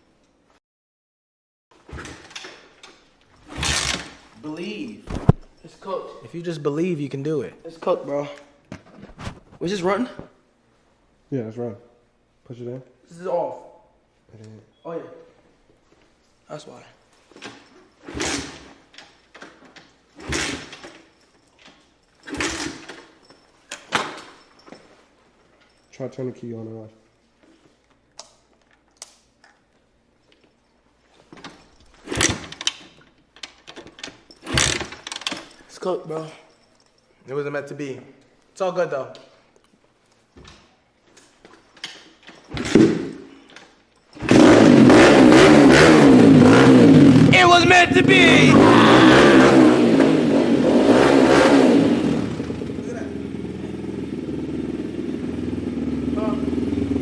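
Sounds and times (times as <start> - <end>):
dirt bike failing to start: 3.4 - 4.2, 17.5 - 19.6, 20.2 - 21.1, 22.2 - 23.2, 34.4 - 35.6, 44.2 - 52.8
dirt bike engine revving: 44.2 - 57.0.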